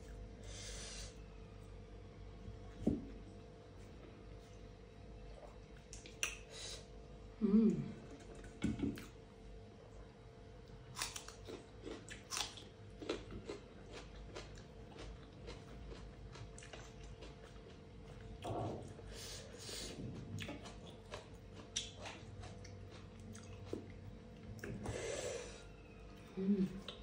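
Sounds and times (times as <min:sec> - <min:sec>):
chewing and lip-smacking: 0:05.3 - 0:06.5, 0:10.9 - 0:18.5, 0:20.0 - 0:24.8, 0:26.1 - 0:27.0.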